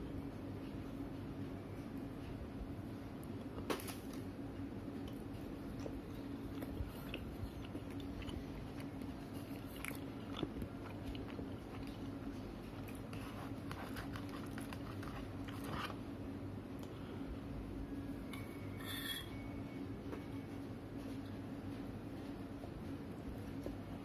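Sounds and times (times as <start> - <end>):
person chewing fries: 4.9 - 16.0.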